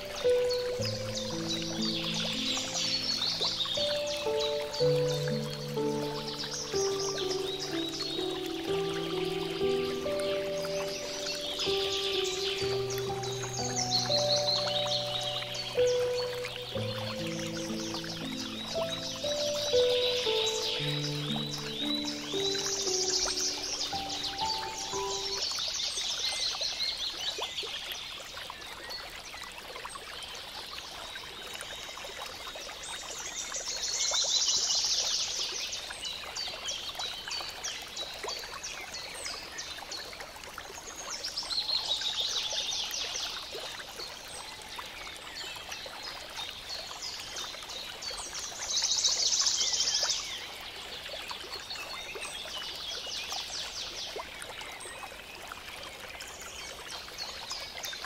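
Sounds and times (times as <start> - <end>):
songbird chirping trills: 0.0 - 27.5.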